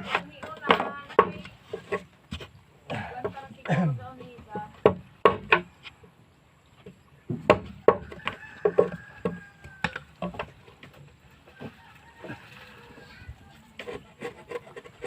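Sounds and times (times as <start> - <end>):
tool knocking on wood: 4.5 - 5.7, 7.3 - 10.5.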